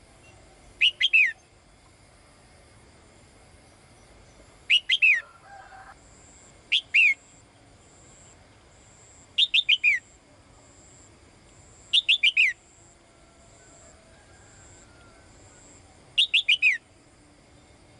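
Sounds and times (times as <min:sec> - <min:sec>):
songbird whistled calls: 0:00.2 - 0:01.6, 0:04.7 - 0:05.3, 0:06.7 - 0:07.3, 0:09.4 - 0:10.1, 0:11.9 - 0:12.6, 0:14.8 - 0:16.9.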